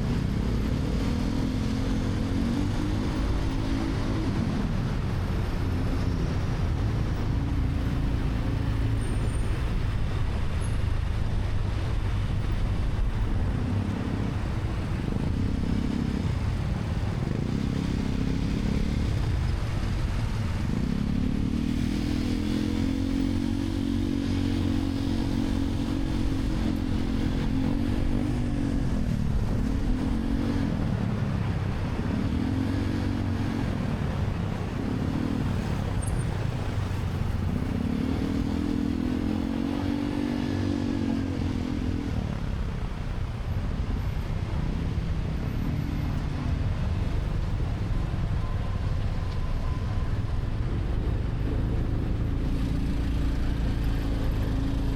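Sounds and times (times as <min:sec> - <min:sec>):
motorcycle engine revving: 0:13.4 - 0:42.7.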